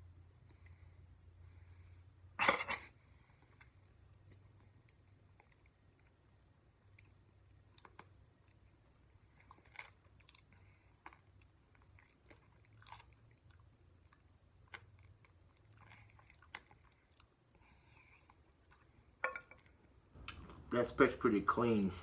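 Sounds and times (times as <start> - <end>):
chewing and lip smacking: 3.2 - 20.7.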